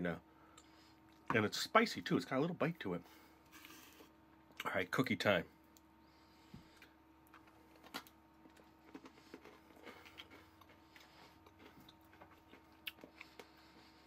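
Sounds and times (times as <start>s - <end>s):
faint steady hum: 0.0s - 14.0s
faint chewing: 6.5s - 14.0s.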